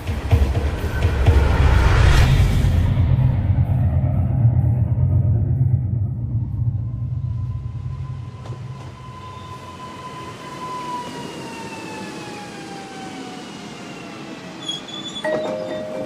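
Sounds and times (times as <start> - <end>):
low rumble: 0.0 - 9.5
descending whistle-like tone: 0.8 - 15.6.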